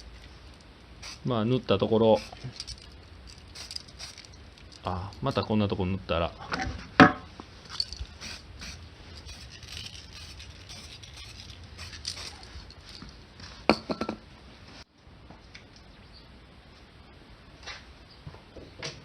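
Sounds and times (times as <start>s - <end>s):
small objects clicking and scraping: 2.2s - 5.4s, 7.6s - 13.2s.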